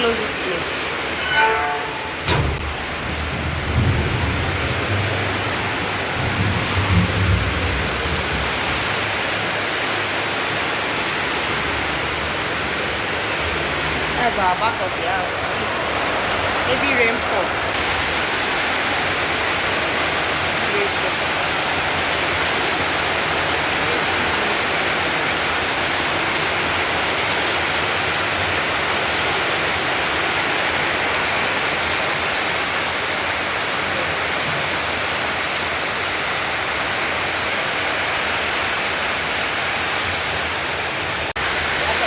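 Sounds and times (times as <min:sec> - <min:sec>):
heavy rain falling: 0:00.0 - 0:42.0.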